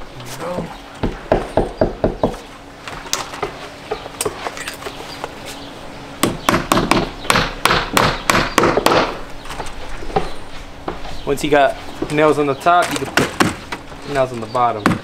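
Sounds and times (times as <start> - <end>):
hammer striking nails: 6.2 - 9.2, 13.1 - 13.6.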